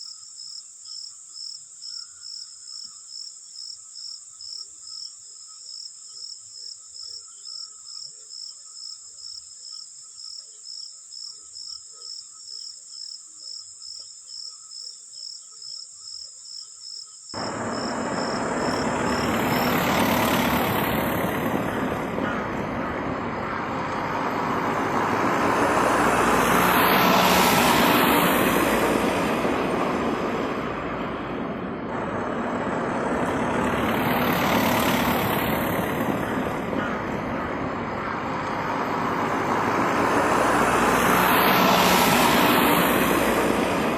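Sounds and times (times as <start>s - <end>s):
cricket chirping: 0.0s - 30.5s
loud rushing vehicle noise: 17.4s - 43.9s.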